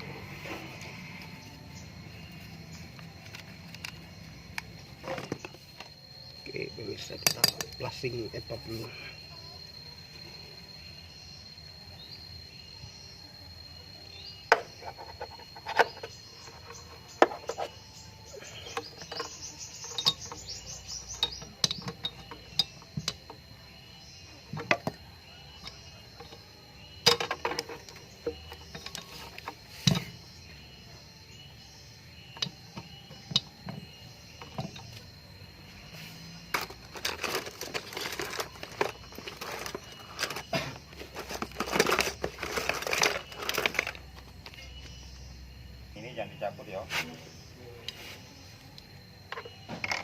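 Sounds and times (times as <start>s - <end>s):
faint high whine: 0.0s - 50.0s
metal tools clinking and knocking: 6.9s - 8.9s, 18.5s - 23.4s, 25.6s - 30.0s, 36.5s - 44.0s
scraping and rustling: 35.8s - 44.6s.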